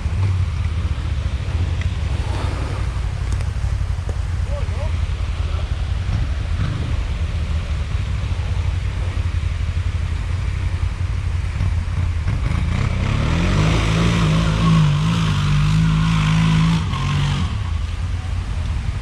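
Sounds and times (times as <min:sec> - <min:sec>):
atv engine revving: 0:00.0 - 0:19.0.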